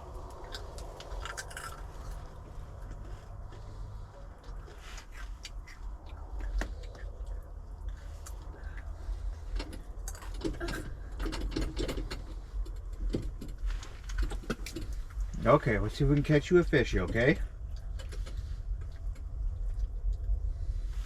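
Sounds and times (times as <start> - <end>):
steady low rumble: 0.0 - 21.0
fishing gear clicks and rattles: 4.4 - 19.3.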